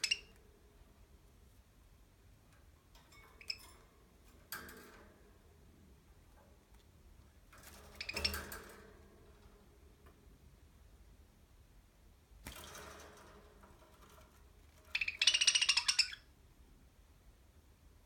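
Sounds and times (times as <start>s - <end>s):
rustle in cage: 7.4s - 10.2s, 12.4s - 16.1s.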